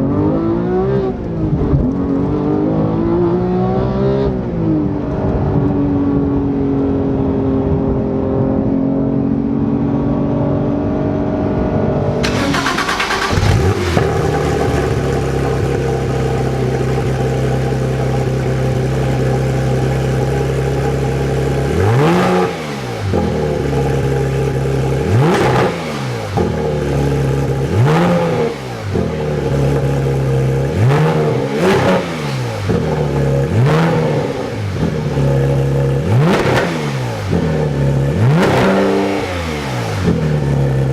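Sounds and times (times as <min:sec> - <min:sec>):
sports car engine revving: 0:00.0 - 0:40.9.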